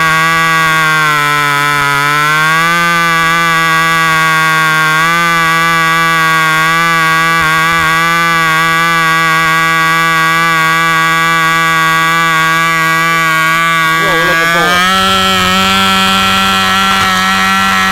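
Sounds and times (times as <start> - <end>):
model glow engine running: 12.5 - 17.9.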